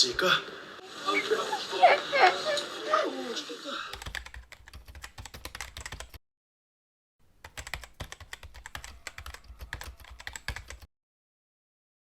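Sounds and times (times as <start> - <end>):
rapid typing on a keyboard: 3.9 - 6.2, 7.4 - 10.9.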